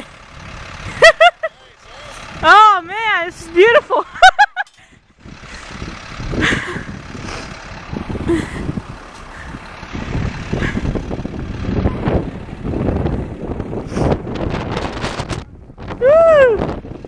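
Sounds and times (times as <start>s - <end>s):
wind buffeting microphone: 4.8s - 17.0s.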